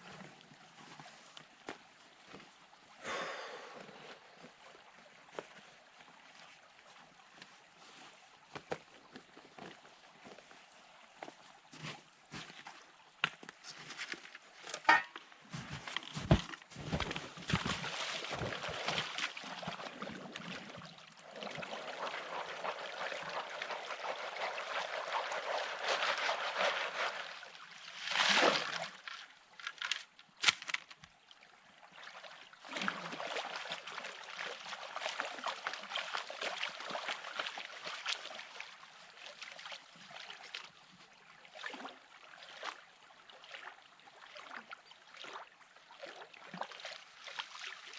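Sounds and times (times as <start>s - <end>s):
water pouring and sloshing: 0.0s - 47.9s
water splash: 14.9s - 29.2s.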